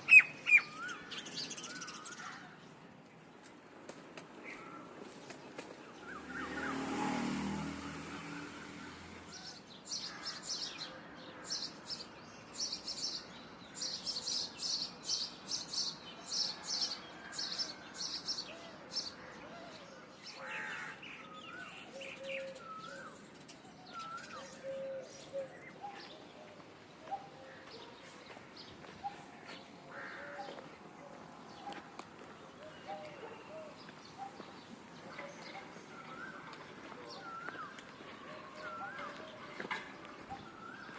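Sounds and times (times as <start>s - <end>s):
birds chirping: 0.0s - 7.6s, 8.2s - 40.9s.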